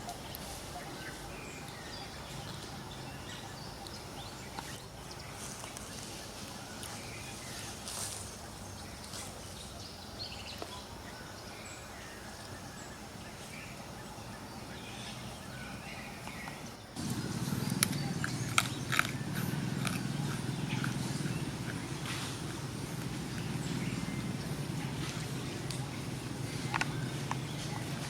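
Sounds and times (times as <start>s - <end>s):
low rumble with crackles: 17.0s - 28.0s.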